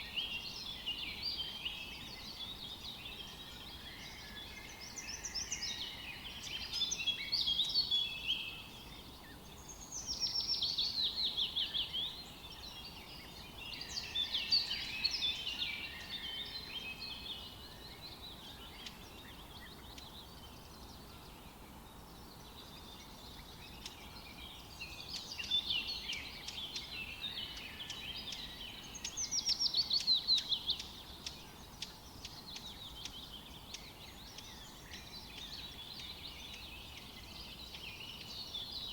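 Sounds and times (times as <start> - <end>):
faint background hiss: 0.0 - 38.9
songbirds chirping and singing: 0.0 - 38.9.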